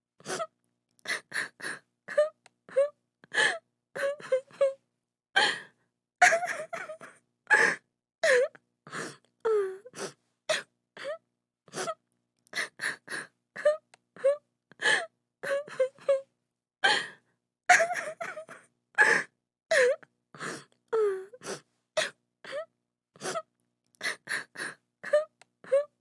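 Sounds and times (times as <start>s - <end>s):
woman sobbing: 1.2s - 4.8s, 6.2s - 8.5s, 17.7s - 20.0s.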